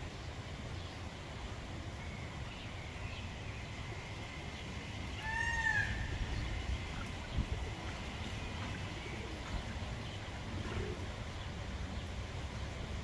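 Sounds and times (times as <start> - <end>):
low rumble of wind: 0.0 - 13.0
water rumbling: 3.7 - 13.0.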